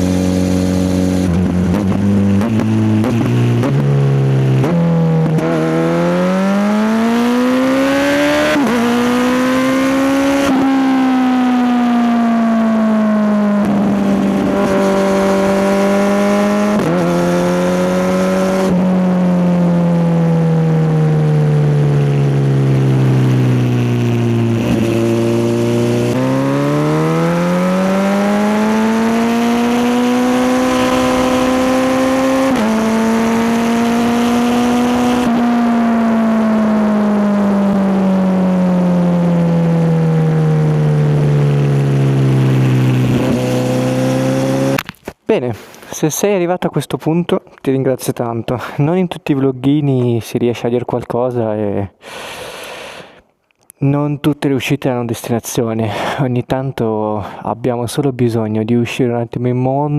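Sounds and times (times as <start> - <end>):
motorcycle engine revving: 0.0 - 44.8.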